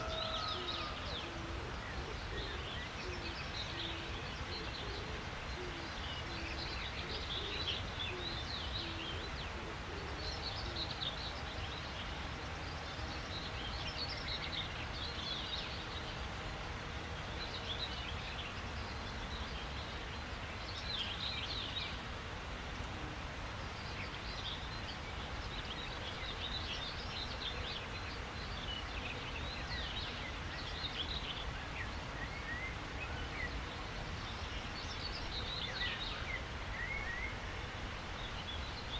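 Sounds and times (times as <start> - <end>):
low bird call: 0.0 - 11.1
background hiss: 0.0 - 38.9
songbirds chirping and trilling: 0.0 - 38.9.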